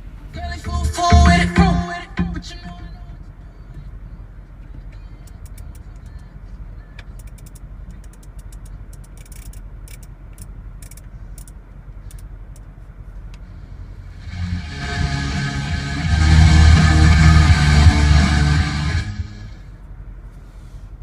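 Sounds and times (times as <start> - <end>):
rock music with electric guitar: 14.2 - 19.5.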